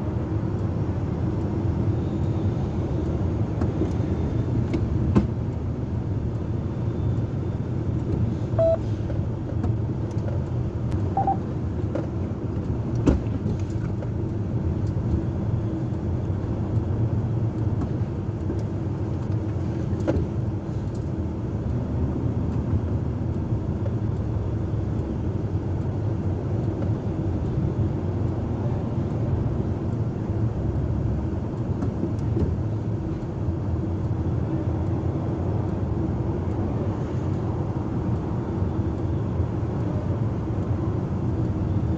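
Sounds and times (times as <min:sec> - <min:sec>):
diesel engine rumbling: 0:00.0 - 0:41.9
short high tones: 0:08.6 - 0:08.9, 0:11.1 - 0:11.4.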